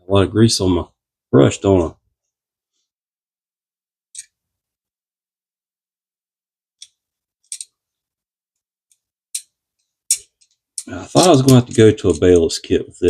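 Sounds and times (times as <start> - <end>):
metal reel parts clicking: 6.8 - 7.7, 10.1 - 12.6.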